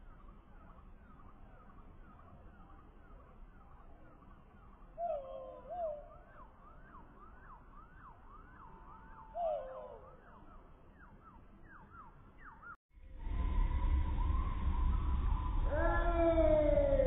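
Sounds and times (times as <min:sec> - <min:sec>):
slowed bird calls: 0:04.9 - 0:06.8, 0:08.8 - 0:12.8.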